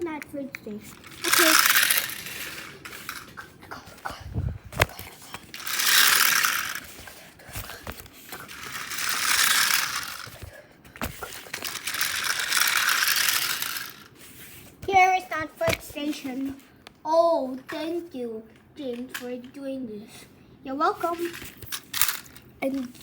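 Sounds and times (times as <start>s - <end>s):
toy train rattling whir: 0.5s - 3.6s, 4.8s - 14.2s, 20.9s - 23.0s.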